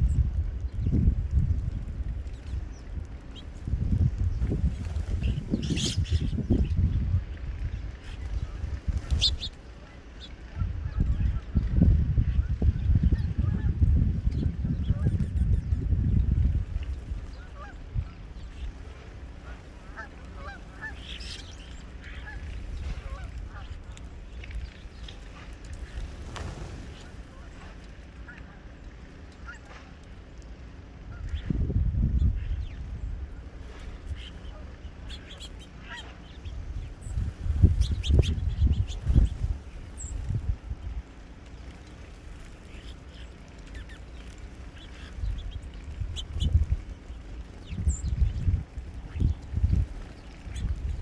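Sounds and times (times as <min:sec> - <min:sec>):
birds calling: 0:00.0 - 0:51.0
steady low rumble: 0:00.0 - 0:51.0
faint bird calls: 0:17.2 - 0:26.0, 0:31.0 - 0:40.2.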